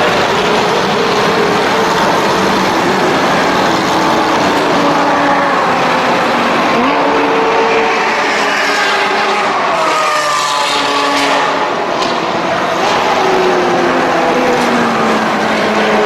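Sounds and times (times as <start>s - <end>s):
engine revving: 0.0s - 16.0s.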